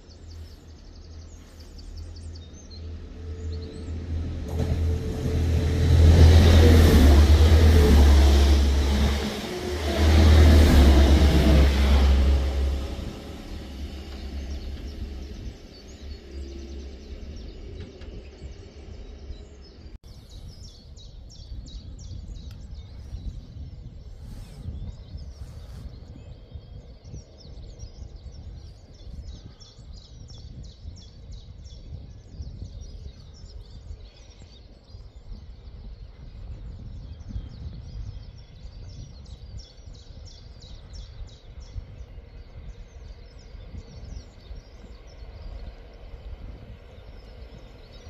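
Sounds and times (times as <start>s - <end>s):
train rumble: 0.0s - 48.0s
birds chirping: 10.6s - 48.0s.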